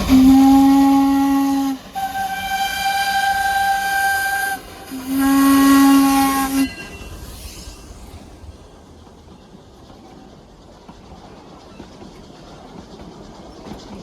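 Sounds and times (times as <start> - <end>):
steam locomotive whistle blasts: 0.0 - 8.4
steam hissing: 0.0 - 14.0.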